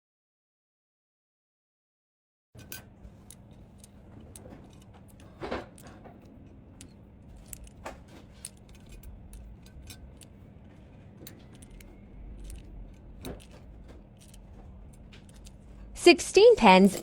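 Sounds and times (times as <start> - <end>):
pens clicking and tapping: 2.6 - 16.0
steady low hum: 2.6 - 17.0.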